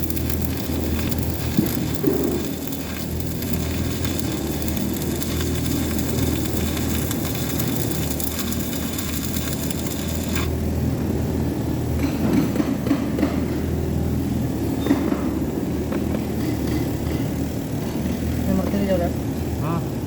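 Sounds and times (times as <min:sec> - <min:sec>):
welding arc crackling: 0:00.0 - 0:10.7.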